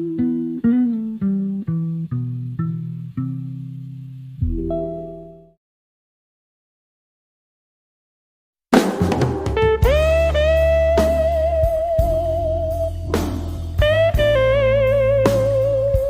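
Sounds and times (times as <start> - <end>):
slide guitar: 0.0 - 5.3, 8.8 - 16.0
bass and drums: 8.7 - 16.0.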